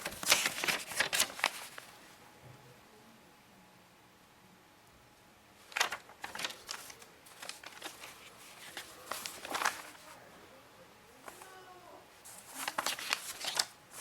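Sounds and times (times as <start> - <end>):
rustling from handling objects: 0.0 - 2.2, 5.6 - 10.2, 11.2 - 14.0.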